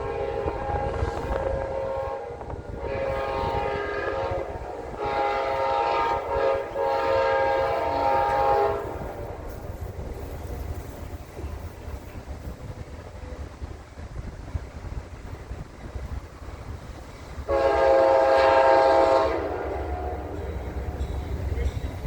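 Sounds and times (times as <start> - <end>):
locomotive air horn blasts: 0.0 - 9.3, 17.5 - 20.8
passing train rumble: 0.0 - 22.0.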